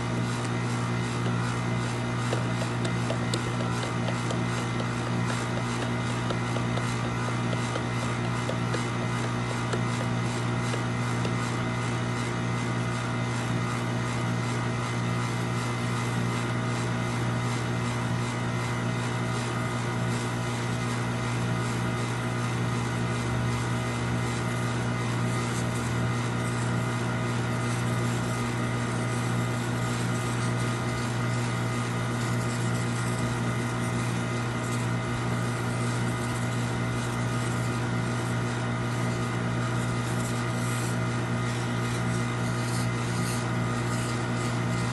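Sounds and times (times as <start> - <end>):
machine humming drone: 0.0 - 13.0.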